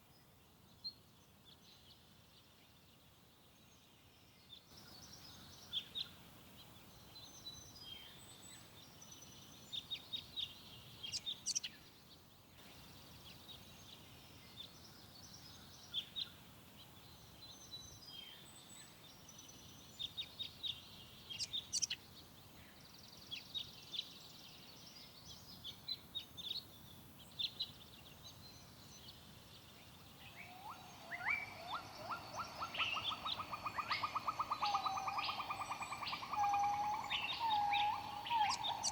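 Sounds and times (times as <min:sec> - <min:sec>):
faint steady hiss: 0:00.0 - 0:38.9
birds chirping: 0:04.5 - 0:38.9
fast bird trill: 0:30.7 - 0:38.9.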